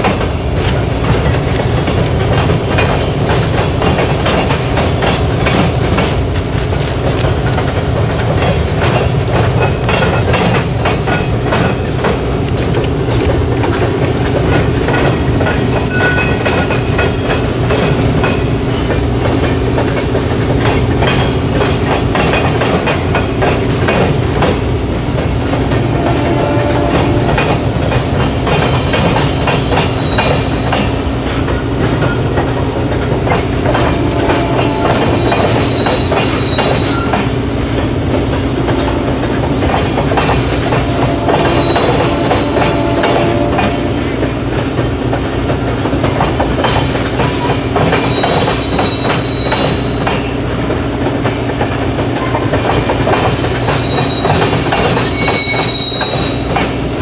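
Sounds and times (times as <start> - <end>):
wheels clicking over rail joints: 0.0 - 57.0
high wheel squeals: 29.6 - 30.9, 33.7 - 37.4, 40.8 - 44.2, 47.9 - 50.4, 53.7 - 56.8.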